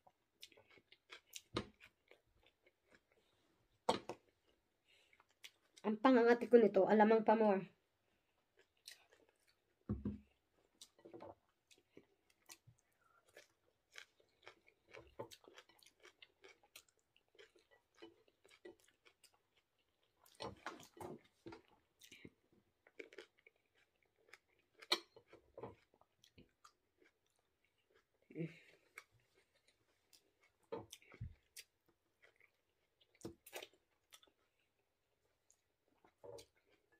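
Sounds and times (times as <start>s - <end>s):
person chewing with wet mouth sounds: 0.0s - 5.9s, 8.0s - 36.9s
eating knocks and smacks: 9.8s - 10.4s.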